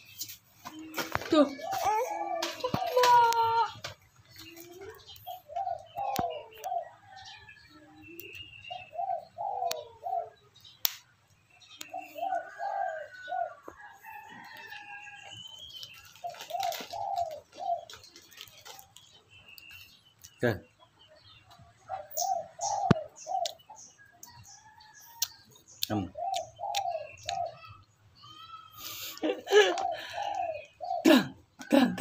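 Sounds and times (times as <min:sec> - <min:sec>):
bird cooing: 0:00.7 - 0:10.7, 0:11.7 - 0:15.1, 0:16.0 - 0:18.8, 0:21.5 - 0:24.8, 0:25.9 - 0:27.8, 0:29.2 - 0:32.0.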